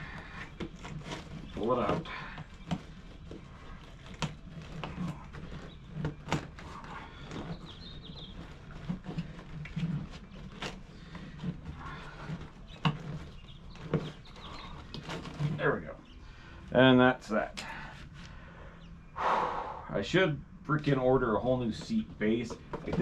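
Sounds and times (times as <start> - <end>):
clicks and knocks of hands working: 0.0 - 15.6, 21.8 - 23.0
steady low hum: 0.0 - 23.0.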